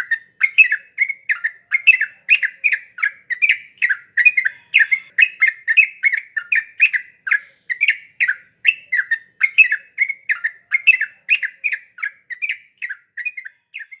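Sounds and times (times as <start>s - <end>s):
bird chattering song: 0.0s - 14.0s.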